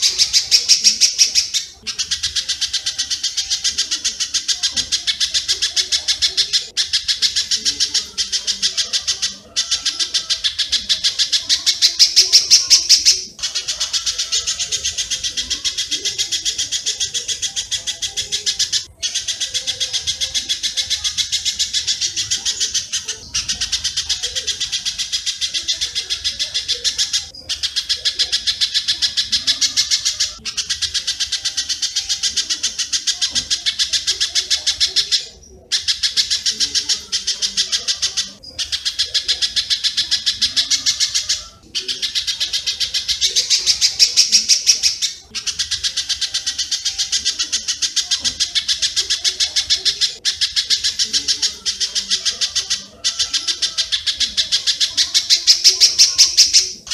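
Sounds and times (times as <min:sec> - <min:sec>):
rapid high bird chirps: 0:00.0 - 0:56.9.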